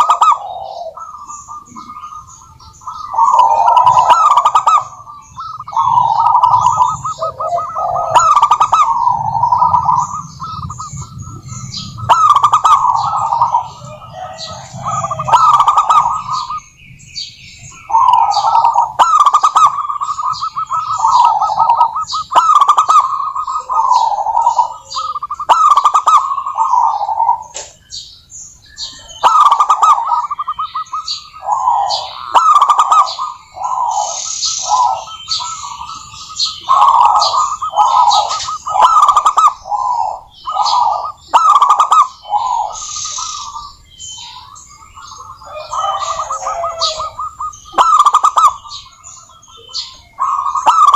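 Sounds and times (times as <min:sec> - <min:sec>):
dove cooing in trilled phrases: 0:00.0 - 0:27.7, 0:28.8 - 0:50.9
small birds chirping faintly: 0:00.0 - 0:50.9.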